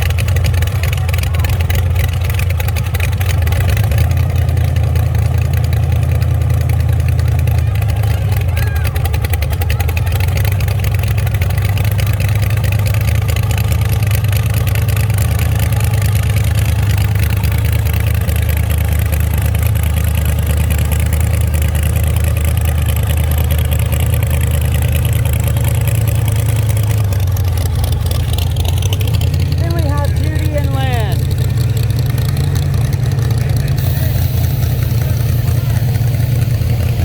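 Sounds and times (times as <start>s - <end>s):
car engine droning: 0.0s - 37.0s
even hiss: 33.8s - 37.0s.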